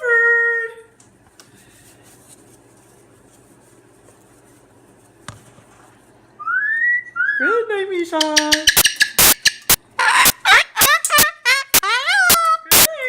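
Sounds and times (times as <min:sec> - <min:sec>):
cockatoo call rising: 0:08.7 - 0:12.9.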